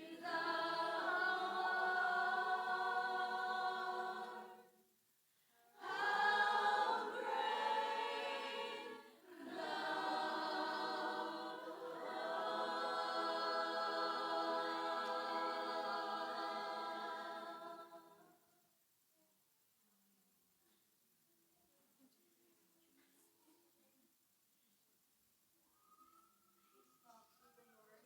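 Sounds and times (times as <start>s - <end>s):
group singing unaccompanied: 0.0s - 4.8s, 5.8s - 18.3s.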